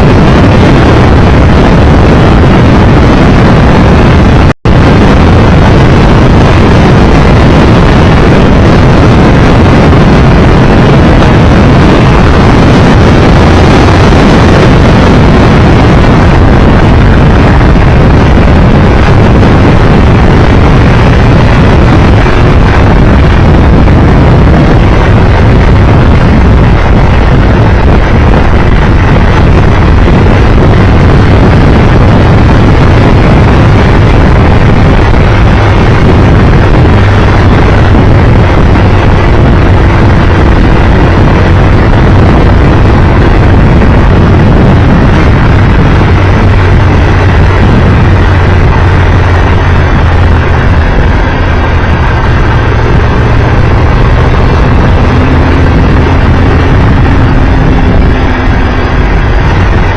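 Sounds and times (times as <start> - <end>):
motorcycle engine at speed: 0.0 - 59.9
wind rush over microphone: 0.0 - 59.9.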